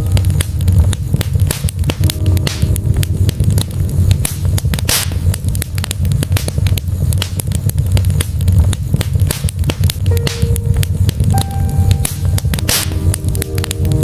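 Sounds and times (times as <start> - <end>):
logs crackling and popping: 0.0 - 14.0
low rumble of flames: 0.0 - 14.0.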